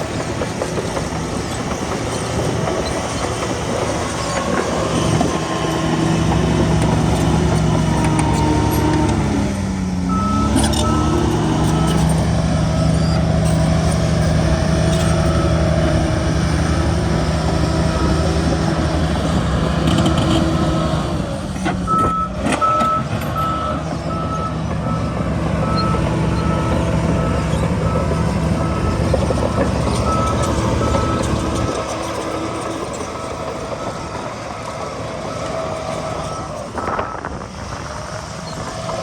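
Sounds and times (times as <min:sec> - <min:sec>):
heavy diesel machinery running: 0:00.0 - 0:39.0
reversing alarm beeping: 0:10.1 - 0:20.8, 0:21.9 - 0:37.3.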